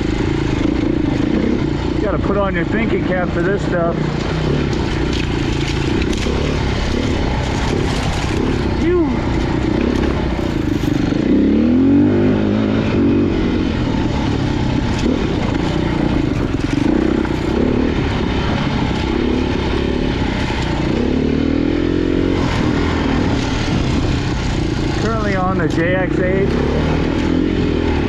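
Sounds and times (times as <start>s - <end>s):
dirt bike engine revving: 0.0s - 28.0s
knocks and clatter: 9.3s - 11.3s.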